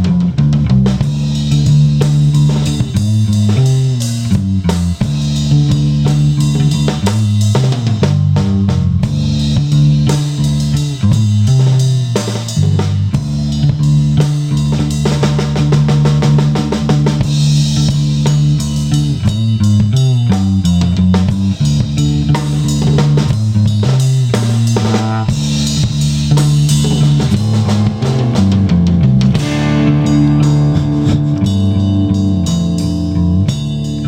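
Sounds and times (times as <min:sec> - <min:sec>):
bass guitar lines: 0:00.0 - 0:34.0
drum kit beat: 0:00.0 - 0:34.0
electric guitar: 0:24.8 - 0:34.0.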